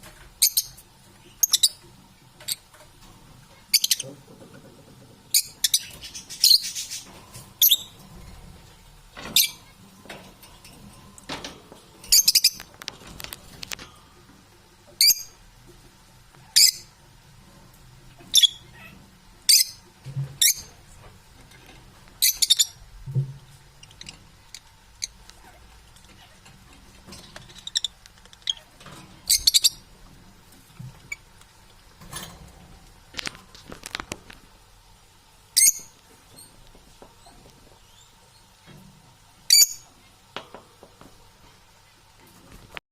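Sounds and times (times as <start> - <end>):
parrots squawking and chirping: 1.4 - 1.8, 3.5 - 4.2, 5.3 - 8.0, 12.1 - 13.3, 15.0 - 15.4, 16.4 - 16.9, 18.2 - 19.8, 20.4 - 20.8, 21.5 - 22.8, 23.8 - 29.9, 35.6 - 36.6, 39.5 - 39.9.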